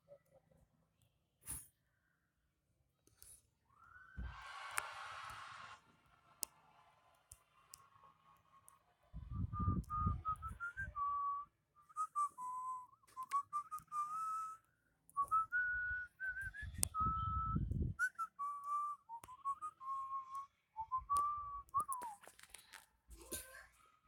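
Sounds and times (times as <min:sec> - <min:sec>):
person whistling a tune: 0:09.3 - 0:22.2.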